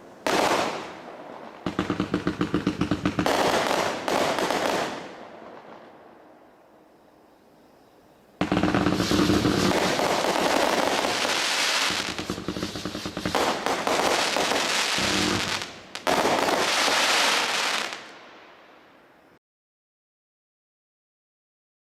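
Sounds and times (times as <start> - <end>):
fireworks firing with crackling: 0.0 - 5.9, 8.4 - 18.3.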